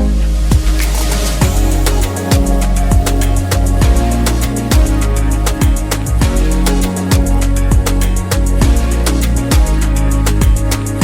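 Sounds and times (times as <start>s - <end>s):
held bass notes: 0.0s - 11.0s
ticking hi-hats: 0.4s - 11.0s
kick drums: 0.5s - 9.8s, 10.4s - 11.0s.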